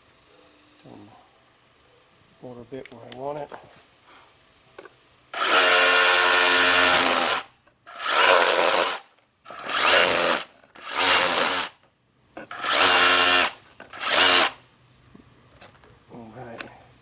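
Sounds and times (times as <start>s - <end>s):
rotary hammer chipping mortar: 5.4s - 11.8s.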